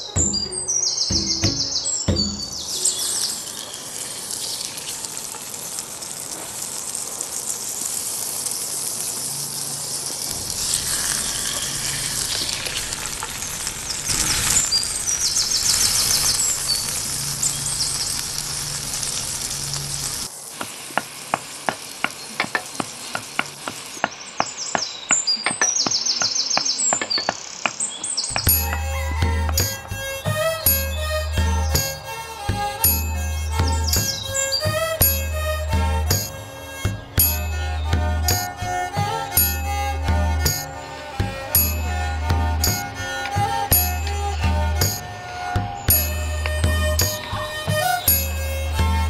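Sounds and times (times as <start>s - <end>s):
pestle pounding in a mortar: 0.2s - 2.7s, 28.3s - 45.0s
oil sizzling in a wok: 2.2s - 25.4s, 28.3s - 45.0s.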